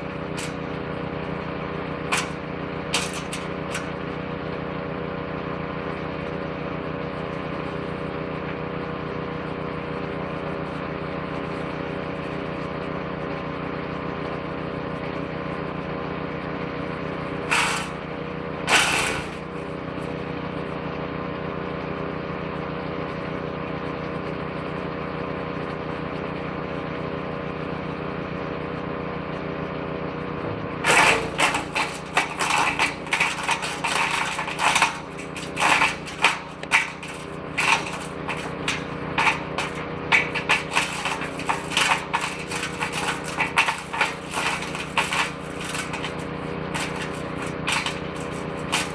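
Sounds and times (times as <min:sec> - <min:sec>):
branches cracking in shredder: 0:00.0 - 0:05.2, 0:17.2 - 0:20.1, 0:30.8 - 0:48.9
small petrol engine running: 0:00.0 - 0:48.9.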